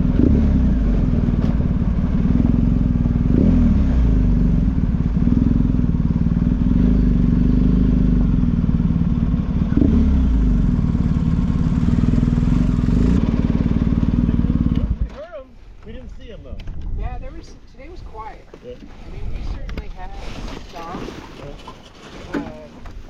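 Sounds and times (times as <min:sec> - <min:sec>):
motorcycle engine running: 0:00.0 - 0:15.1.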